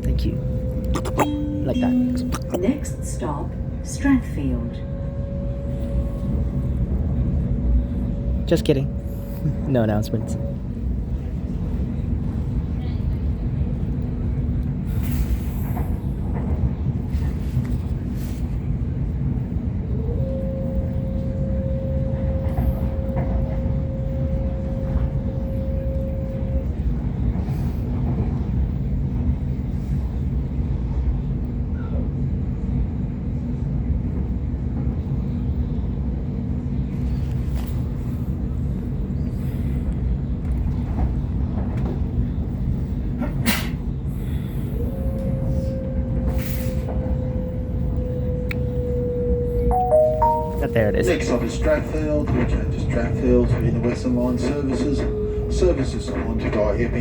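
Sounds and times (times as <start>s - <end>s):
steady tone: 0.0s - 4.2s, 49.7s - 51.1s
train wheels rumbling on track: 2.0s - 49.7s, 51.2s - 57.0s.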